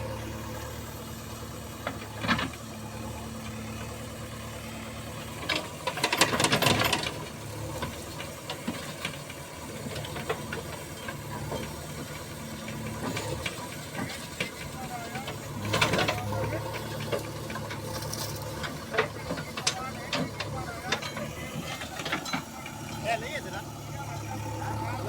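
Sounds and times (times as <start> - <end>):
diesel engine running: 0.0 - 25.0
rattling and clattering: 5.4 - 25.0.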